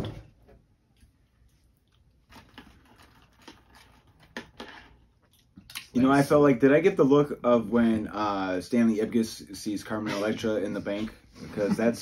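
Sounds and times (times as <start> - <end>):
person chewing cereal: 1.4 - 5.9.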